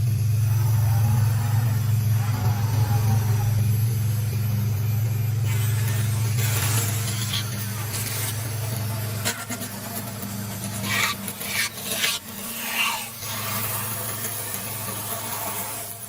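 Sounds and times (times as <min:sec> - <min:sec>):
cnc router humming: 0:00.0 - 0:16.0
cutter rasping through foam: 0:05.4 - 0:16.0.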